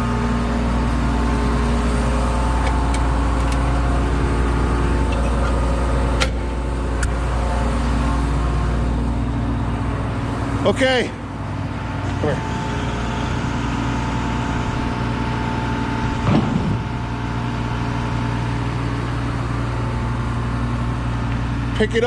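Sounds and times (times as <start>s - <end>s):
diesel engine rumbling: 0.0s - 22.0s.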